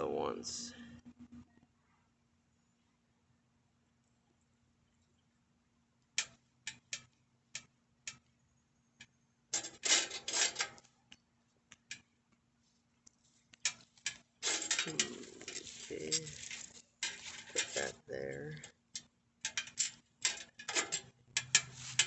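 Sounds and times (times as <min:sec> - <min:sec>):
metal parts clicking and clinking: 0:09.5 - 0:10.9, 0:13.6 - 0:22.0.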